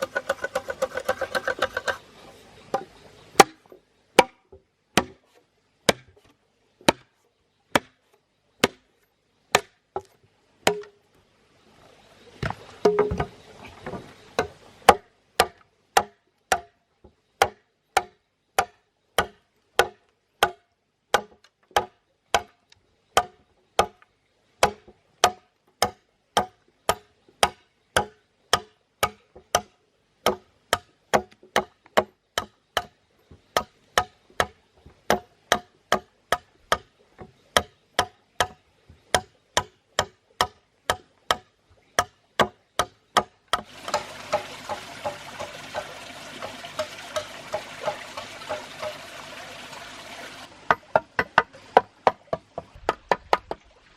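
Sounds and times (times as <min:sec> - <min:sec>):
sharp hollow knocks: 0:02.7 - 0:05.2, 0:31.2 - 0:49.5.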